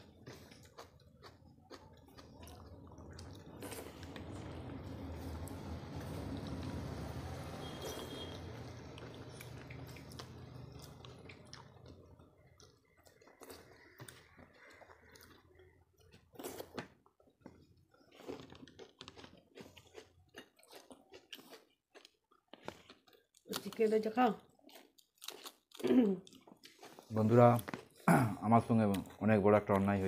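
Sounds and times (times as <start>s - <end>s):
wet chewing and mouth smacks: 0.0s - 23.8s, 24.4s - 28.1s
low steady hum: 2.2s - 12.5s.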